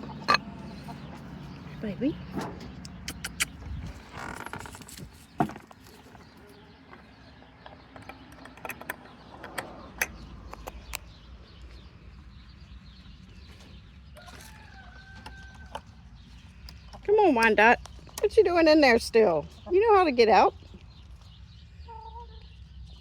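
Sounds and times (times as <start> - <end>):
hens clucking: 0.0 - 4.8
sharp clicks: 2.8 - 3.6, 8.0 - 11.1.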